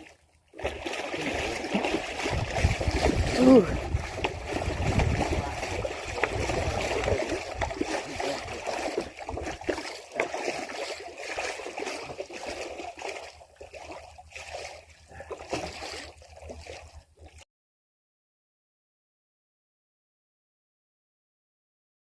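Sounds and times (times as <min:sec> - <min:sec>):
water splashing and sloshing: 0:00.0 - 0:17.4.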